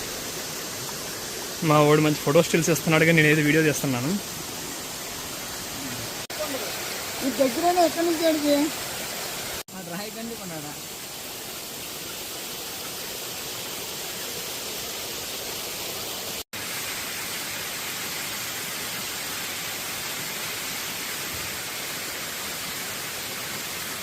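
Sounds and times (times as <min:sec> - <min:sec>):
water falling over rocks: 0:00.0 - 0:24.0.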